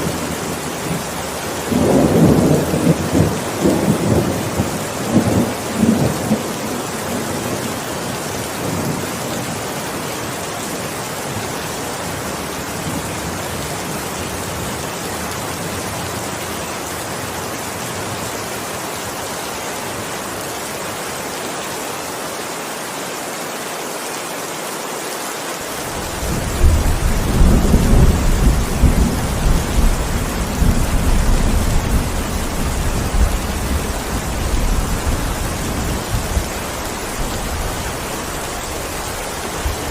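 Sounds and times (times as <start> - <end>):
heavy rain falling: 0.0 - 39.9
thunder rumbling: 26.0 - 39.9.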